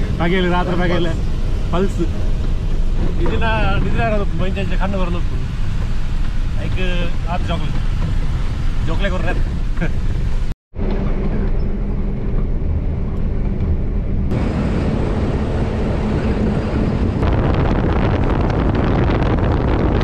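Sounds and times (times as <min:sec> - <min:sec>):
truck engine and road rumble: 0:00.0 - 0:20.0
wind noise: 0:00.0 - 0:20.0.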